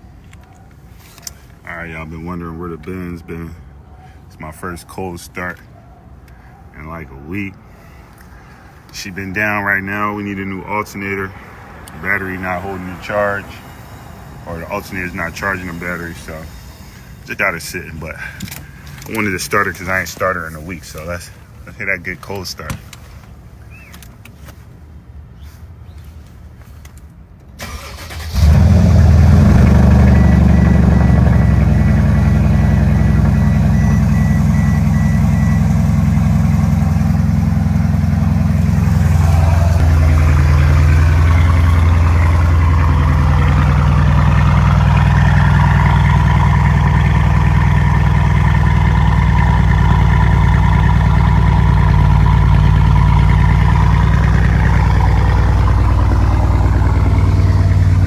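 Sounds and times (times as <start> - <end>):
car engine starting and idling: 0.0 - 24.8, 27.4 - 58.0.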